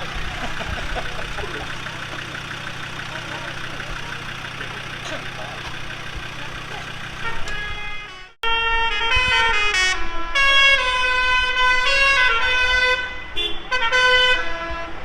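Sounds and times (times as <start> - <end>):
engines running: 0.0 - 8.4
musical vehicle horn: 0.0 - 15.0.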